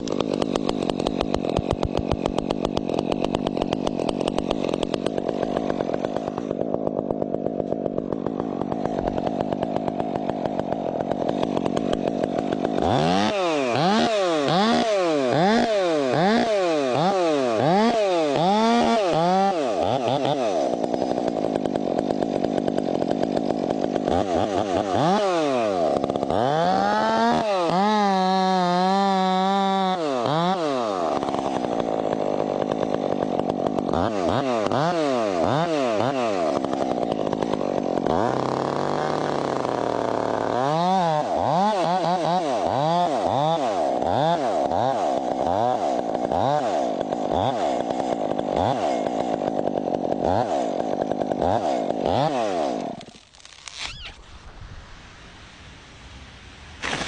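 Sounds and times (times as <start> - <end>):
chainsaw revving: 0.0 - 54.2, 56.7 - 57.0.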